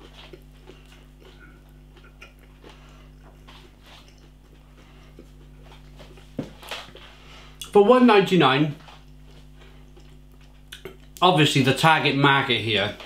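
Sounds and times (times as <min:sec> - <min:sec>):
faint chewing: 0:00.0 - 0:07.7, 0:08.8 - 0:11.2
low electrical hum: 0:00.0 - 0:13.0.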